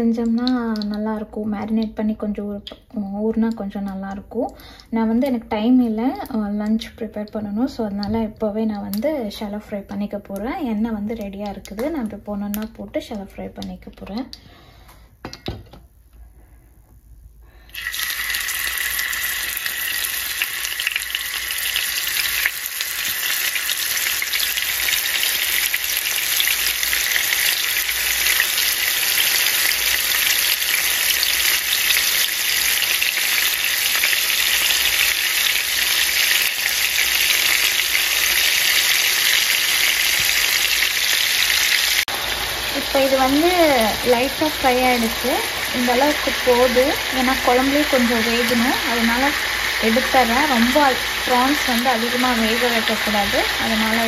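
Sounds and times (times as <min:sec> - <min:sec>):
prawns sizzling in hot oil: 0:17.5 - 0:54.0.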